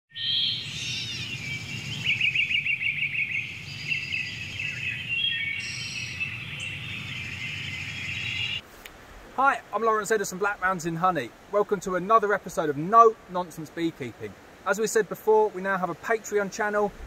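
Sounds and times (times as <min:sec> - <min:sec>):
birds singing and trilling: 0:00.1 - 0:08.6.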